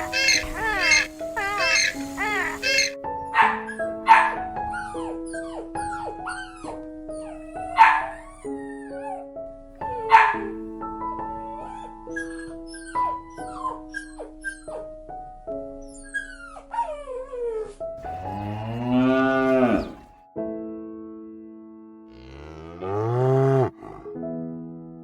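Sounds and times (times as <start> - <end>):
dog bark: 0.0 - 9.2, 9.9 - 10.6
light background music: 0.0 - 25.0
cow mooing: 18.0 - 20.2, 22.1 - 24.2.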